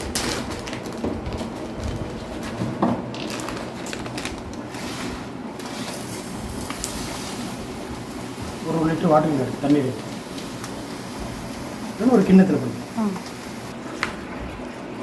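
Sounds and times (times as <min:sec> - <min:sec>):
background hiss: 0:05.9 - 0:13.7.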